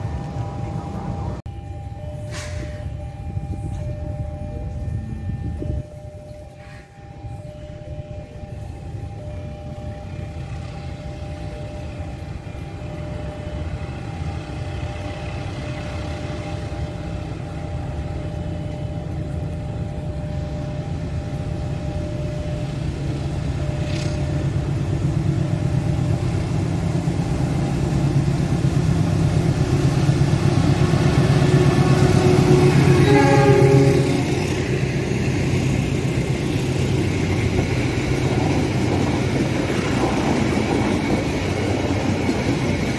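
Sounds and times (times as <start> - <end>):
coaches running on rails: 0.0 - 42.9
train rumble: 0.0 - 42.9
train horn blast: 31.0 - 34.8.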